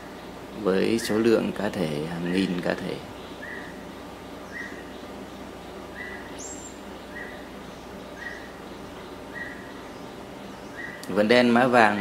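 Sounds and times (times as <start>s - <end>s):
faint forest background: 0.0s - 12.0s
high bird chirp: 3.1s - 12.0s.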